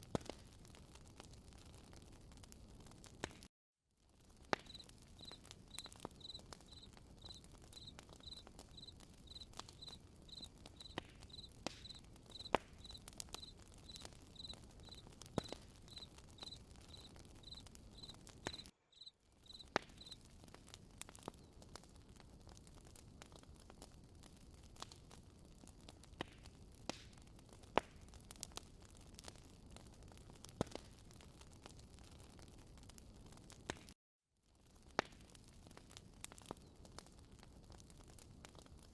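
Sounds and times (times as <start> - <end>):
campfire crackling and popping: 0.0 - 34.0, 34.6 - 38.9
cricket chirping: 4.7 - 15.0, 15.9 - 18.2, 19.0 - 20.2.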